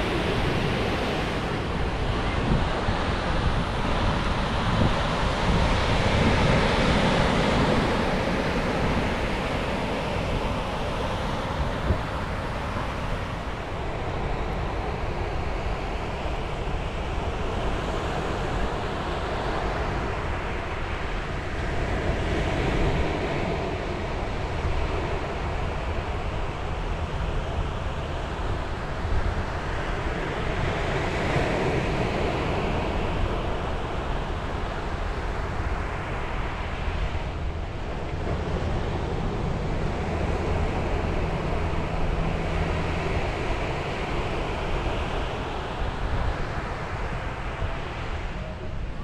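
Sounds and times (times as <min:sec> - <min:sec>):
ocean waves breaking on shore: 0:00.0 - 0:49.0
wind rumbling on microphone: 0:00.0 - 0:49.0.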